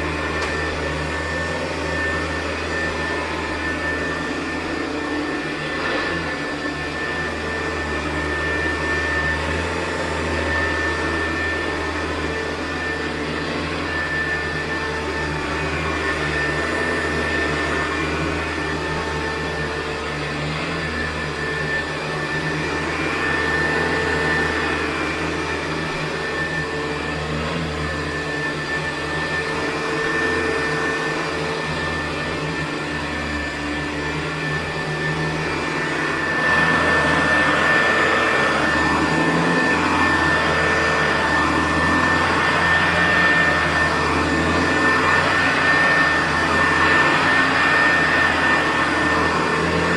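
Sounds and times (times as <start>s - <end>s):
vacuum cleaner motor hum: 0.0s - 49.9s.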